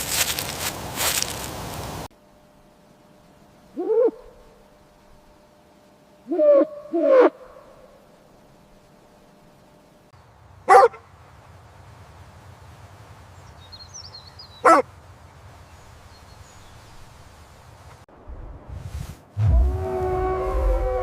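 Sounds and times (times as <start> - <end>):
dog barking: 10.7 - 11.0, 14.6 - 14.9
faint low rumble: 18.1 - 21.0.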